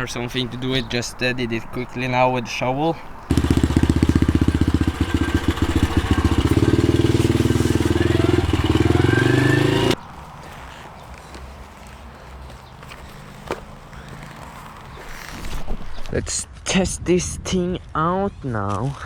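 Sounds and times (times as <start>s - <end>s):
small motorbike engine revving: 3.3s - 10.0s.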